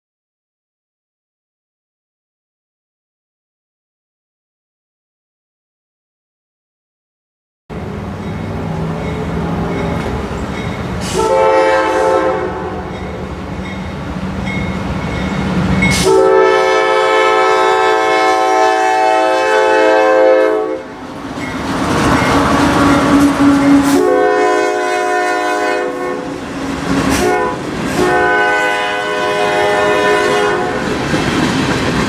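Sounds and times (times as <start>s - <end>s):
low train rumble: 7.7s - 32.0s
locomotive air horn: 7.8s - 13.4s, 15.9s - 21.0s, 22.2s - 30.9s.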